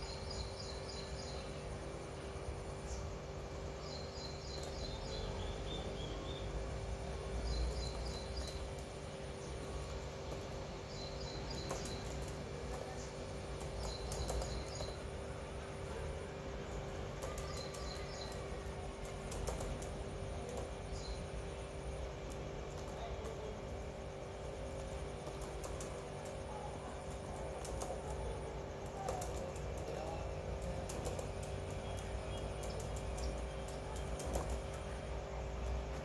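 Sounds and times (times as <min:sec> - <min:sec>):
bird chirping: 0:00.0 - 0:01.8, 0:02.7 - 0:06.7, 0:07.3 - 0:16.0, 0:16.6 - 0:21.8
steady low hum: 0:00.0 - 0:36.0
faint clicks: 0:28.8 - 0:34.9.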